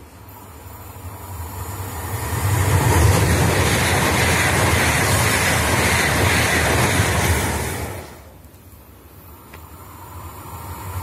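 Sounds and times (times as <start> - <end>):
high-speed train passing: 0.0 - 11.0.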